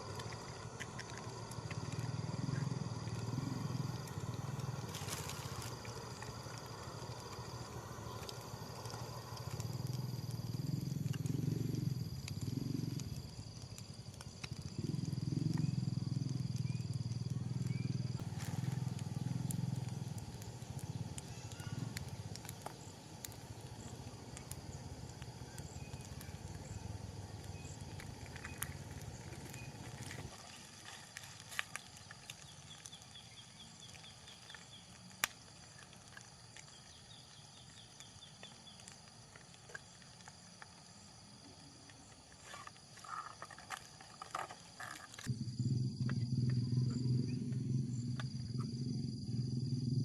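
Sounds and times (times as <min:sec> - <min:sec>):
night insects trilling: 0:00.0 - 0:50.0
low rumble: 0:45.3 - 0:50.0.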